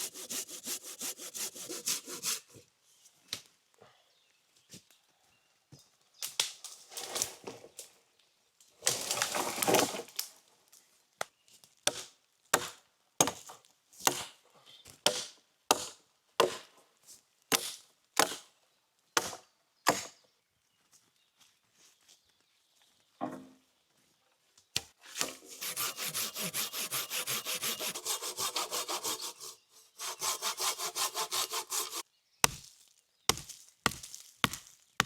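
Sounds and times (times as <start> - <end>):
wood scraping and crackling: 8.8 - 10.3.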